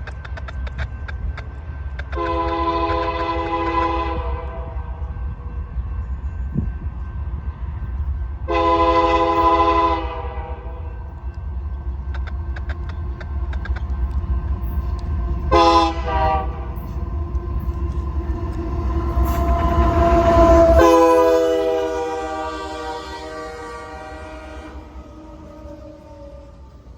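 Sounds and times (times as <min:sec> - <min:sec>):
low rumble of train: 0:00.0 - 0:26.9
locomotive air horn blasts: 0:02.2 - 0:04.8, 0:08.5 - 0:10.9, 0:15.5 - 0:16.9, 0:18.7 - 0:26.5
sharp clicks: 0:11.3 - 0:15.5.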